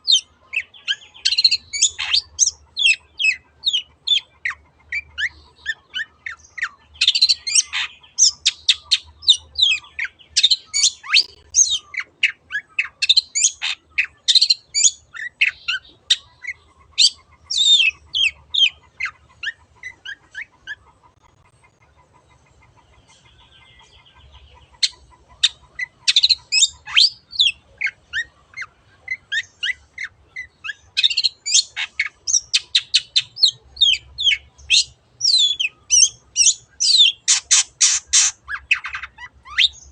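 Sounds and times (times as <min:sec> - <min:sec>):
faint bird trill: 0:00.0 - 0:39.9
bird singing chirps and whistles: 0:05.2 - 0:16.3, 0:30.7 - 0:39.9.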